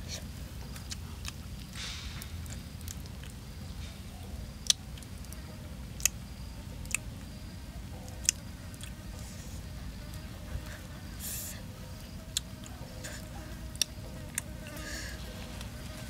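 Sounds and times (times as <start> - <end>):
person chewing dried fish: 0.6 - 3.5, 6.0 - 6.2, 8.1 - 9.0, 12.2 - 15.8.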